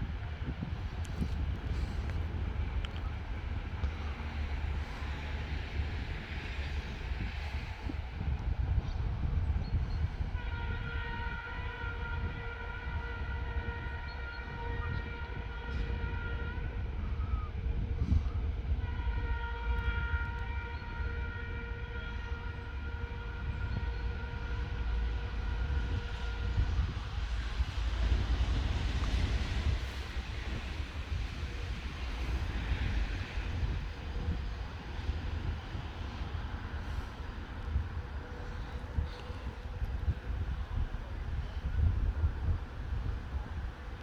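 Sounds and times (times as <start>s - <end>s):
locomotive horn blasts: 10.4s - 17.5s, 18.7s - 43.0s.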